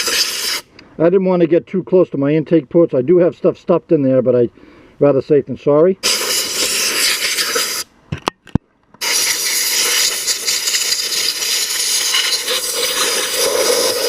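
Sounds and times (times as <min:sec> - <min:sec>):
sandblast gun hissing: 0:00.0 - 0:00.7, 0:06.0 - 0:07.9, 0:09.0 - 0:14.0.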